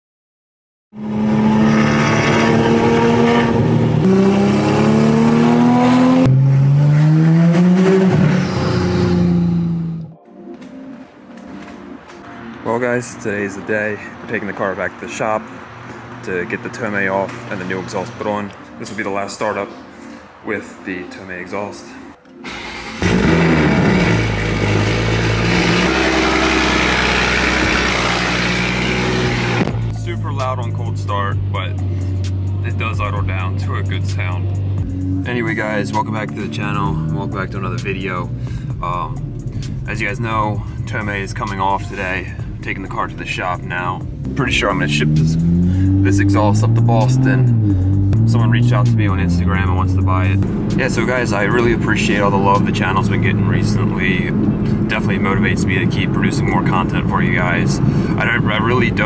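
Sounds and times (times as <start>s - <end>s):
car engine accelerating hard: 1.0s - 10.2s, 22.4s - 30.0s, 31.8s - 59.0s
loud car engine idling: 22.5s - 29.9s, 50.4s - 59.0s.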